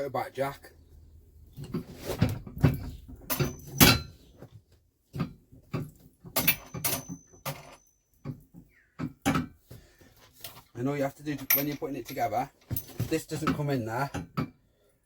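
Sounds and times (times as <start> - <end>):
metal jack parts clattering: 2.6 - 4.2, 5.8 - 8.0, 11.3 - 13.6.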